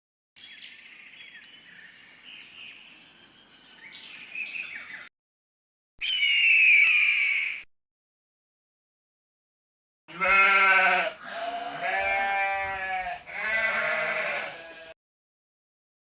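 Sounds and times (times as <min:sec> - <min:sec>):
sheep bleating: 0:10.1 - 0:15.0.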